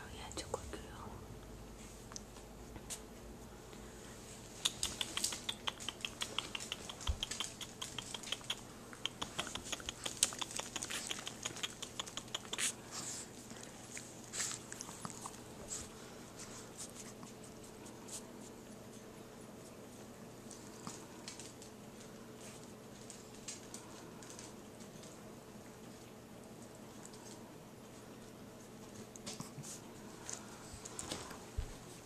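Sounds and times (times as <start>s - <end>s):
wet mouth clicks and smacks: 4.6s - 12.8s.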